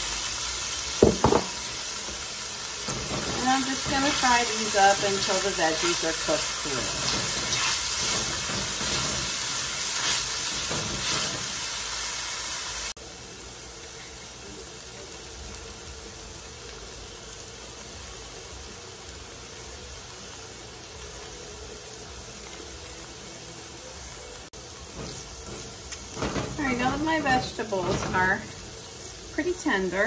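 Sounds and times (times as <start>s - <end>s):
vegetables sizzling in oil: 0.0s - 30.0s
spatula strokes in a skillet: 2.9s - 12.7s.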